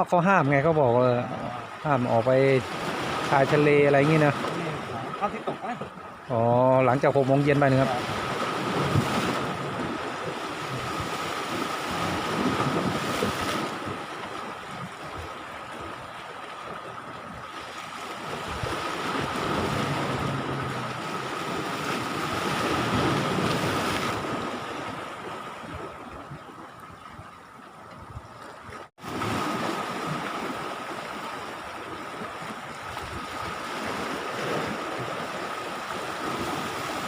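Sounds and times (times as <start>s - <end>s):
sea waves washing on beach: 0.0s - 26.4s, 27.5s - 37.0s
wind buffeting microphone: 7.8s - 28.9s.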